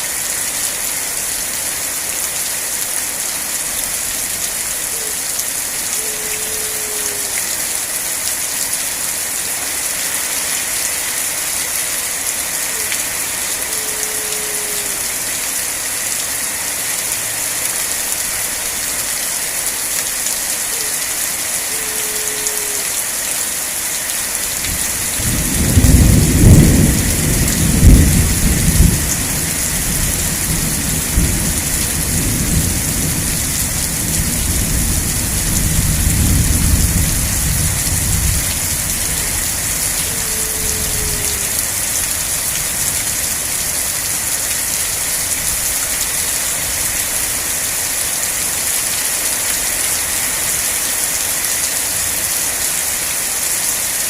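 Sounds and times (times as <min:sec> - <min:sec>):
steady rain falling: 0:00.0 - 0:54.0
low thunder rumble: 0:25.0 - 0:40.0.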